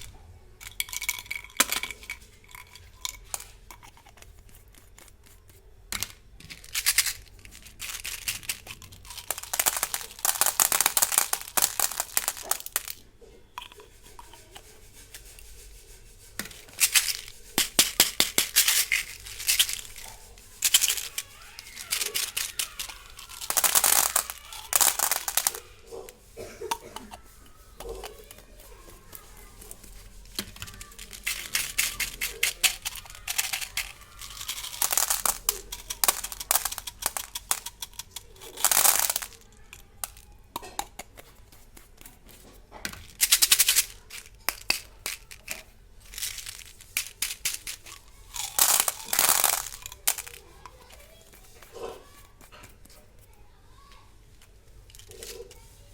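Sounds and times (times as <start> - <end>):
candy packets crinkling and tearing: 6.4 - 13.0, 16.6 - 26.2, 27.8 - 40.3, 43.0 - 52.7.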